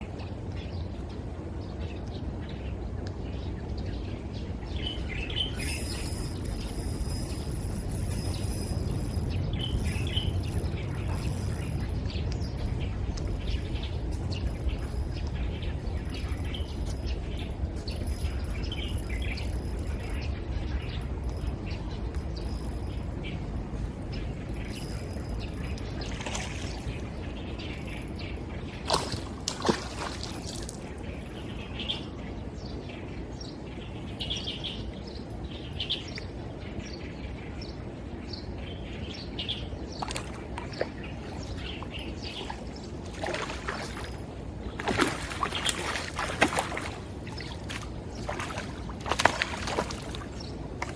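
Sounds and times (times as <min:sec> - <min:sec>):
low background rumble: 0:00.0 - 0:29.8
small birds chirping: 0:01.8 - 0:50.9.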